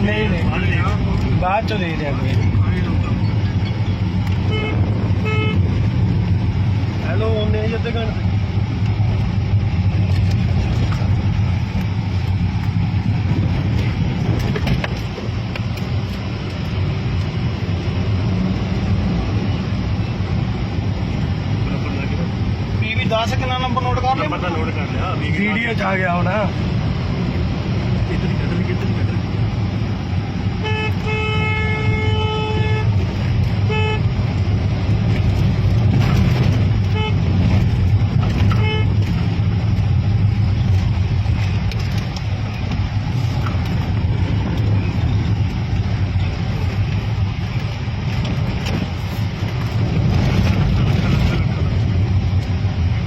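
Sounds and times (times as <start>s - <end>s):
car engine and road rumble: 0.0s - 53.0s
vehicle horn: 4.4s - 5.7s, 30.6s - 33.0s, 33.6s - 34.2s, 36.8s - 37.4s, 38.4s - 39.1s.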